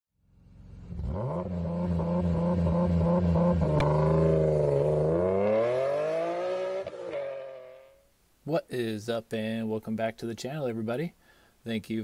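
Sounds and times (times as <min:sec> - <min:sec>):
car engine idling: 0:00.2 - 0:04.8.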